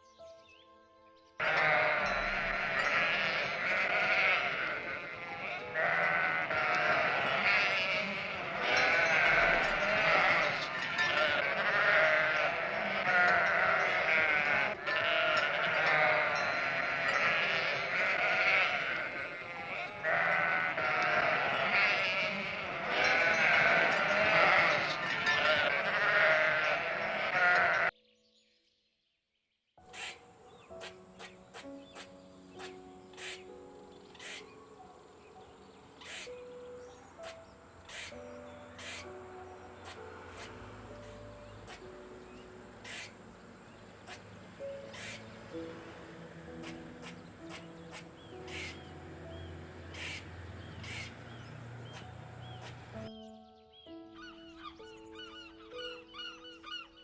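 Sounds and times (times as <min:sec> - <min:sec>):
sheep bleating: 0:01.4 - 0:27.9.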